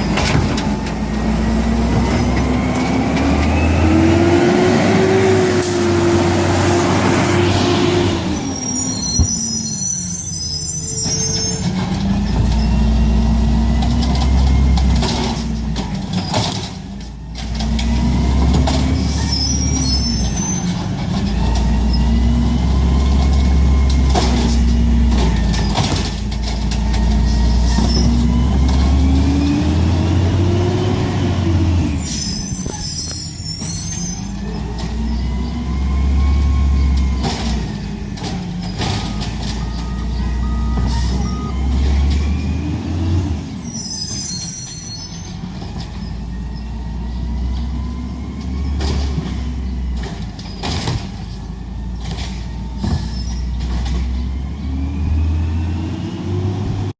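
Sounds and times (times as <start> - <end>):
garbage truck engine revving: 0.0 - 9.8, 11.2 - 56.9.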